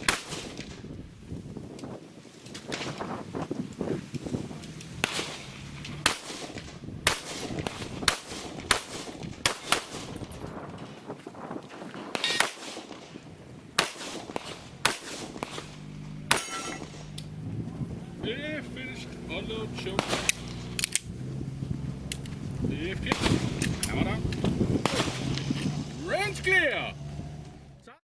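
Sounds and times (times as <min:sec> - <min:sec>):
metallic ring: 0:16.3 - 0:17.1
handgun shots: 0:16.3 - 0:17.2.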